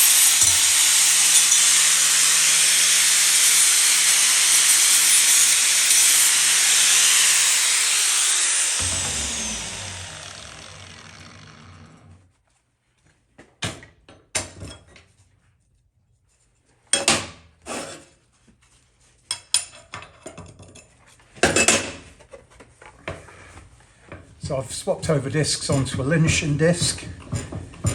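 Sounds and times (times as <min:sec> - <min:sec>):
angle grinder spinning down: 0:00.0 - 0:12.2.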